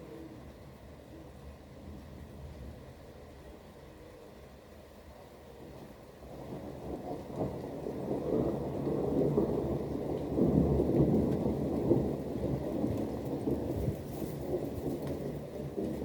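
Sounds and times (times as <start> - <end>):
rain: 0.0 - 16.0
rolling thunder: 6.2 - 16.0.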